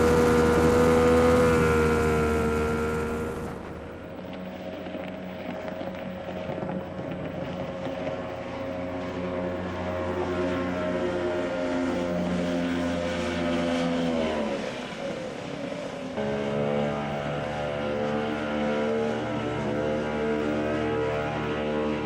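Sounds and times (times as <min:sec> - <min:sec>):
outboard motor running: 0:00.0 - 0:10.8.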